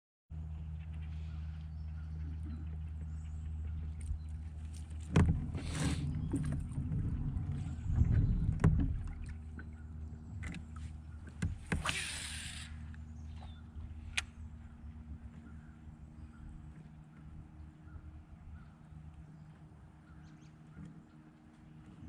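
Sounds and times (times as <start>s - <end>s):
rumble of movement: 0.3s - 22.0s
steady low hum: 0.3s - 22.0s
short hissing bursts: 11.8s - 12.9s.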